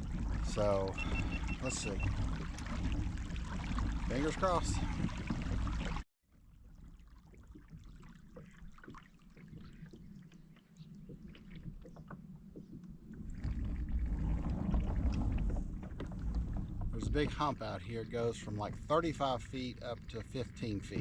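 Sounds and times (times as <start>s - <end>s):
water lapping: 0.0s - 21.0s
low rumble: 13.0s - 21.0s.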